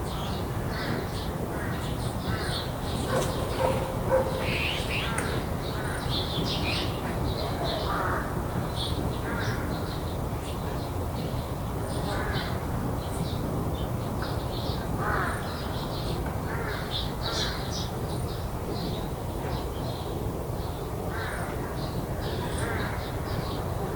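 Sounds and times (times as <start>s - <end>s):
small birds chirping: 0.1s - 8.0s.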